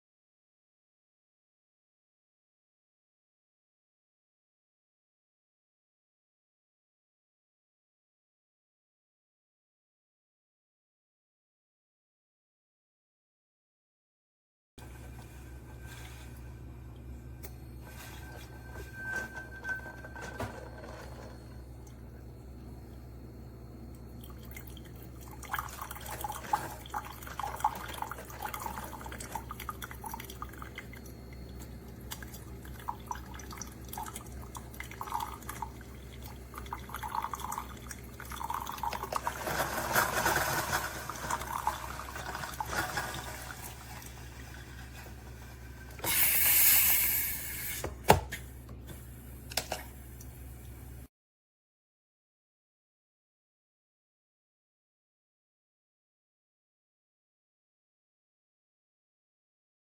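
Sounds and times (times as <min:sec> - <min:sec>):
low machine hum: 0:14.8 - 0:46.0
coffee trickling and gurgling: 0:14.9 - 0:47.8
coffee maker hiss: 0:38.4 - 0:51.0.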